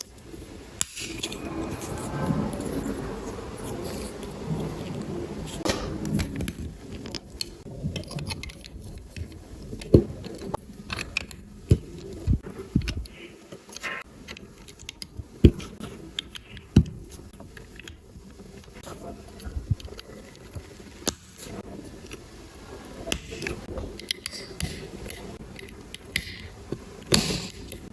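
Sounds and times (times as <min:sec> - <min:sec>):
plastic pieces rattling and scraping: 0:05.6 - 0:18.0.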